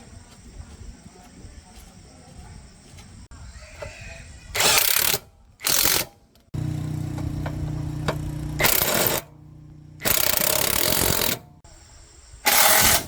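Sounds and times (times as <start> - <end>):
machine hum: 6.6 - 11.6.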